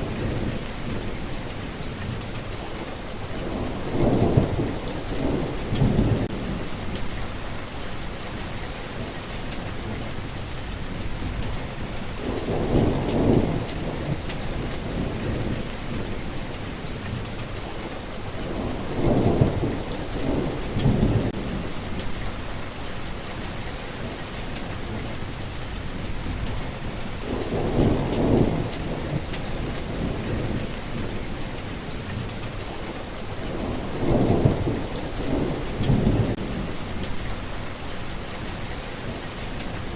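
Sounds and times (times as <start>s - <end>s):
heavy rain: 0.0s - 39.9s
rolls of thunder: 3.4s - 7.2s, 11.2s - 16.2s, 18.4s - 22.3s, 26.0s - 31.2s, 33.4s - 37.4s.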